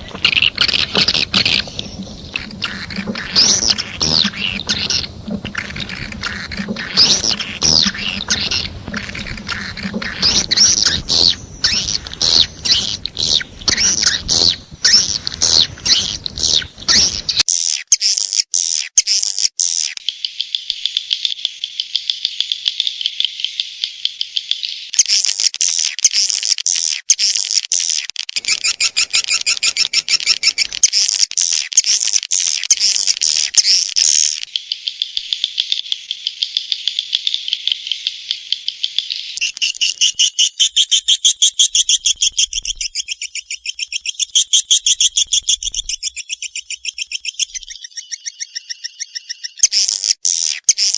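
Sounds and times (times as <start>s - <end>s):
swiftlet twittering and chirps: 0.0s - 17.4s, 28.4s - 30.9s, 46.4s - 49.8s.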